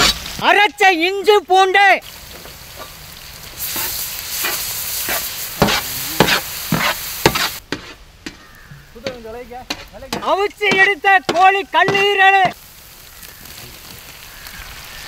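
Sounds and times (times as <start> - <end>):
food sizzling in a wok: 2.0 - 15.0
wooden spatula scraping wok: 3.6 - 10.7.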